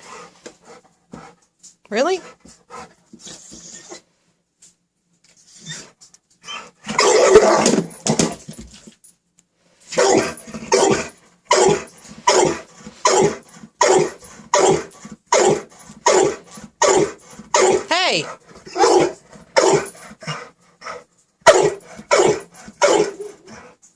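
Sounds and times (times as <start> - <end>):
dog barking: 7.0 - 7.7, 9.9 - 17.9, 18.7 - 19.9, 21.4 - 23.5.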